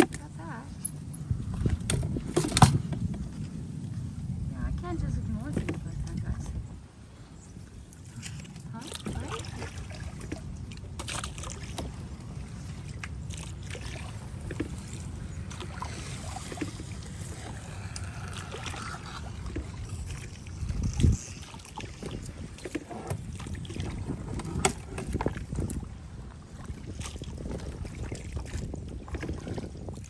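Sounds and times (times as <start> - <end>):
wind rumble on microphone: 0.0 - 30.0
paddle strokes in water: 4.8 - 30.0.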